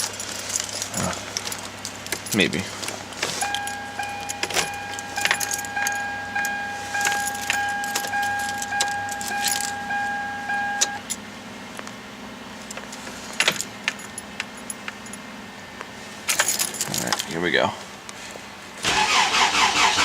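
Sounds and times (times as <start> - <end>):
keys jangling and clicking: 0.0 - 11.2, 13.3 - 15.2, 16.3 - 17.4
car warning chime beeping: 3.3 - 11.1.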